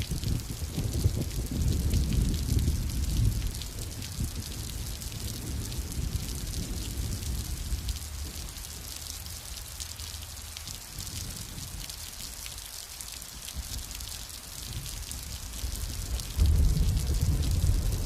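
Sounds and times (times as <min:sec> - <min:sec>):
steady rain falling: 0:00.0 - 0:18.0
distant thunder rumble: 0:00.1 - 0:08.6, 0:14.6 - 0:18.0.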